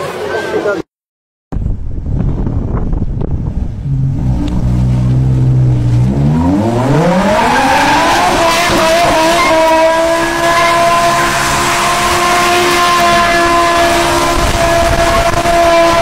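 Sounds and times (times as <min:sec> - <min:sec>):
car engine revving: 0:03.3 - 0:16.0.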